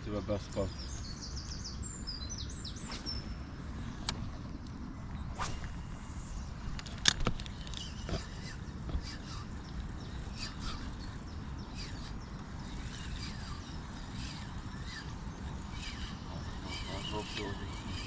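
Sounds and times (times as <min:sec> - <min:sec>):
low rumble: 0:00.0 - 0:10.2
birds chirping: 0:00.0 - 0:18.0.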